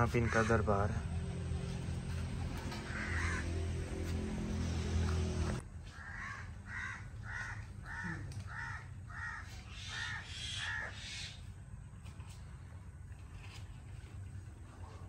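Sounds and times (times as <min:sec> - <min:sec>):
bird calling: 0:06.0 - 0:11.6.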